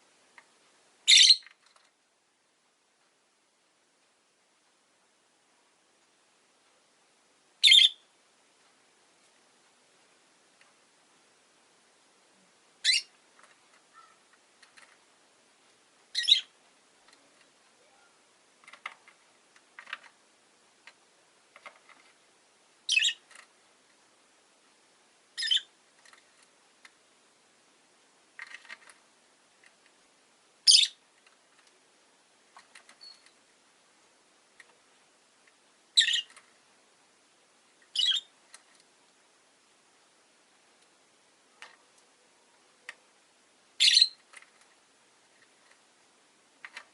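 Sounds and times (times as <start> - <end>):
lovebirds chirping: 1.0 - 1.6, 7.6 - 8.1, 12.8 - 13.2, 16.1 - 16.6, 22.8 - 23.4, 25.4 - 25.8, 30.6 - 31.0, 35.9 - 36.5, 37.8 - 38.4, 43.8 - 44.4
small clicks: 32.5 - 33.4, 46.6 - 46.9.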